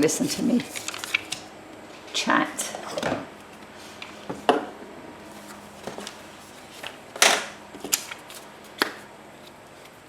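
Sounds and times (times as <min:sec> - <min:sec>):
faint steady hum: 0:00.0 - 0:10.0
paper rustling: 0:00.1 - 0:01.5, 0:05.3 - 0:08.8.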